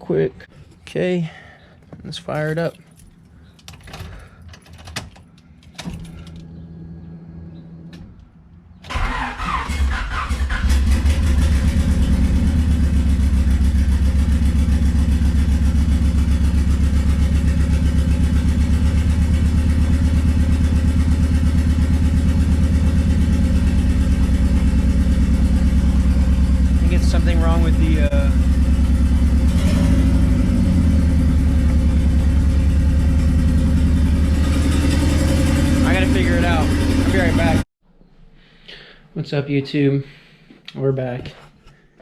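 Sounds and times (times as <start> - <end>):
car engine cranking and idling: 1.8 - 37.6
keys jangling in ignition: 2.9 - 6.5.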